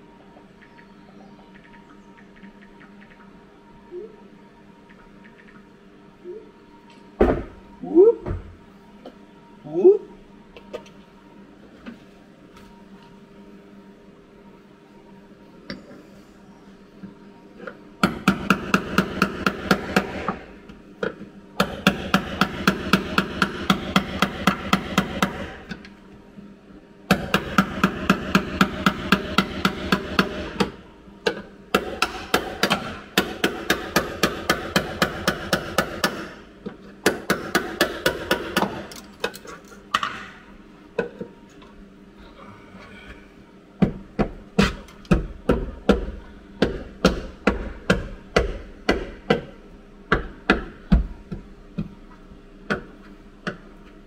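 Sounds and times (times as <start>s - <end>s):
hammer beating on sheet steel: 18.0s - 20.4s, 21.6s - 25.6s, 27.1s - 30.8s, 31.7s - 36.4s, 37.0s - 38.8s, 44.6s - 49.5s.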